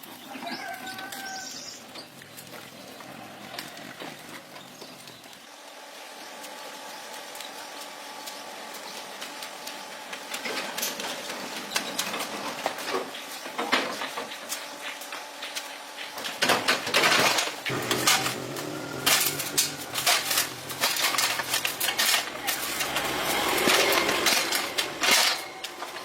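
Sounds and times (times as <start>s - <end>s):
burst of rough noise: 17.7s - 26.0s
metal tools clinking: 17.7s - 26.0s.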